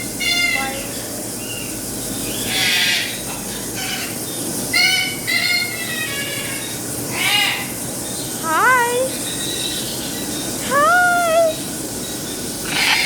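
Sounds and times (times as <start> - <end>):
parrots squawking: 10.6 - 11.6.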